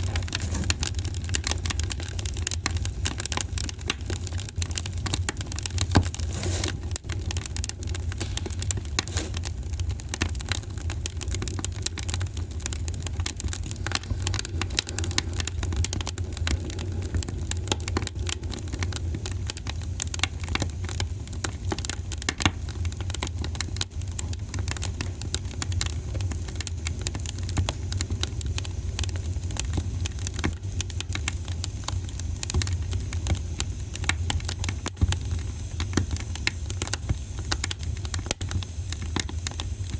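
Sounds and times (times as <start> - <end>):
low rumble of flame: 0.0 - 39.9
wood fire crackling and popping: 0.0 - 39.9.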